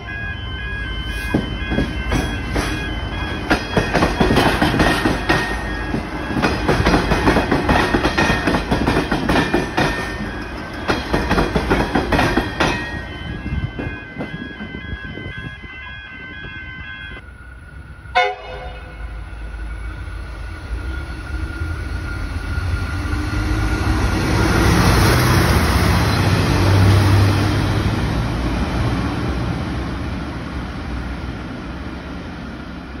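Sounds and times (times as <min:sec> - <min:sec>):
diesel railcar passing: 0:00.0 - 0:33.0
train horn toot: 0:18.1 - 0:19.8.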